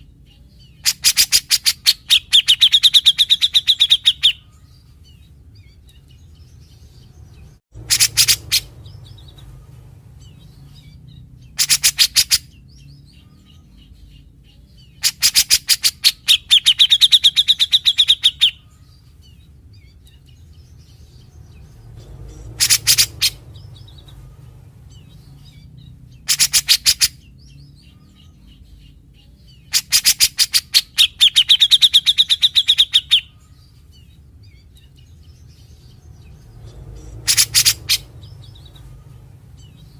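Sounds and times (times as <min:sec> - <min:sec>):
bird harsh rattling calls: 0:00.8 - 0:04.4, 0:07.8 - 0:09.5, 0:10.2 - 0:12.5, 0:15.0 - 0:18.6, 0:21.6 - 0:27.3, 0:29.7 - 0:33.3, 0:35.8 - 0:39.9.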